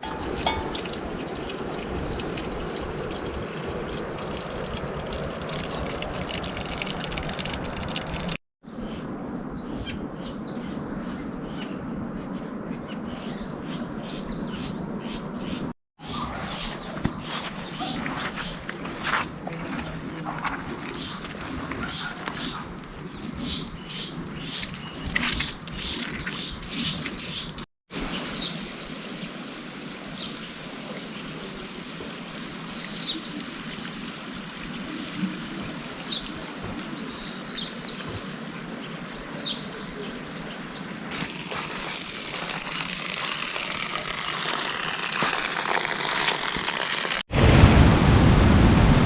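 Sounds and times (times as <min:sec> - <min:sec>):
steady outdoor hiss: 0:00.0 - 0:49.0
small birds chirping: 0:08.7 - 0:44.7.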